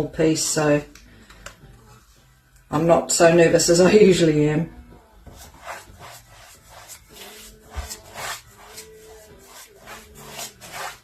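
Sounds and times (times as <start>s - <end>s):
paintbrush strokes: 5.2s - 11.0s.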